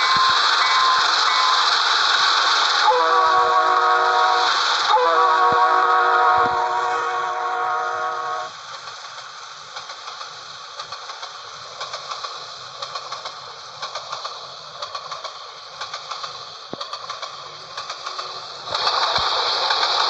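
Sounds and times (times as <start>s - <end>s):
rolling hiss of wagons: 0.0s - 20.0s
wheels clicking over rail joints: 8.5s - 20.0s.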